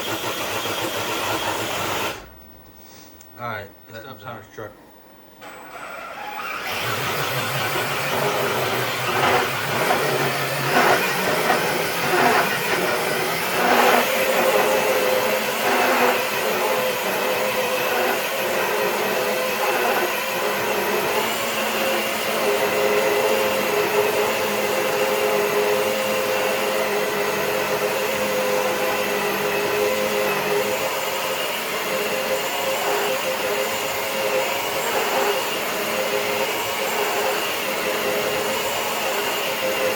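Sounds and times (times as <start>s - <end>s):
toy truck motor whining: 0.0s - 2.3s, 5.4s - 39.9s
sled scraping on concrete: 5.8s - 24.2s.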